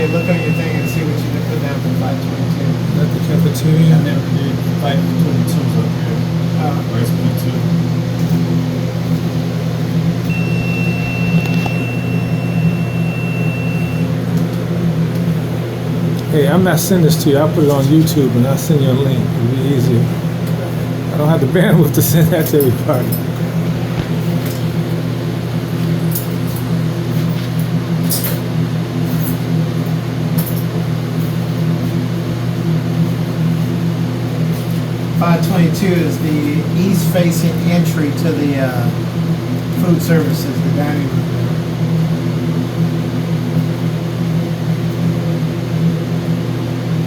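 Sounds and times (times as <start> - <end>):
long high-pitched beep: 0.0 - 1.8, 10.2 - 14.4
low machinery hum: 0.0 - 47.0.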